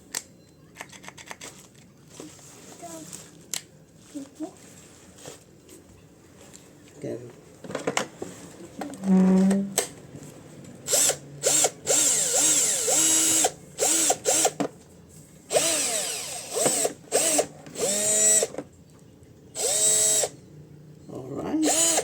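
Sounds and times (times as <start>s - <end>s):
cordless drill motor whine: 10.9s - 14.6s, 15.5s - 18.6s, 19.6s - 20.4s, 21.6s - 22.0s.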